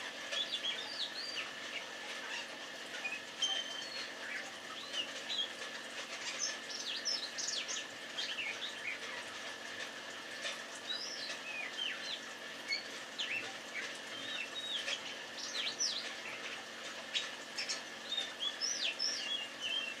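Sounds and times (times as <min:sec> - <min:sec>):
bird singing whistles and chirps: 0:18.1 - 0:20.0.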